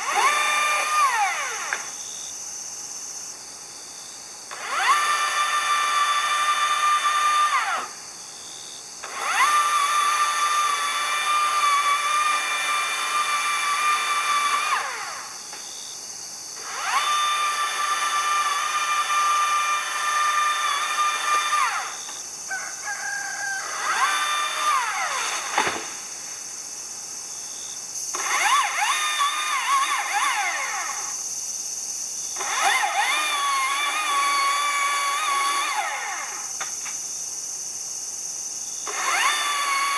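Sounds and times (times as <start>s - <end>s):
power tool motor whining: 0.0s - 2.0s, 4.5s - 8.0s, 9.0s - 15.4s, 16.6s - 22.2s, 23.6s - 26.0s, 28.1s - 31.2s, 32.3s - 37.0s, 38.8s - 39.9s.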